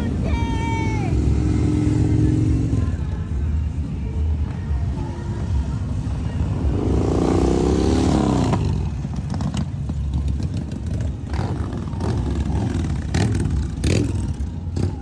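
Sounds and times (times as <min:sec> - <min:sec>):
motorcycle engine revving: 0:06.6 - 0:15.0.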